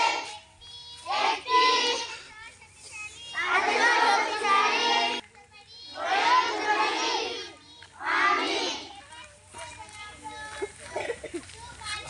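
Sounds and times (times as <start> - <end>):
children singing in unison: 1.1 - 2.2, 3.4 - 5.2, 5.9 - 8.9.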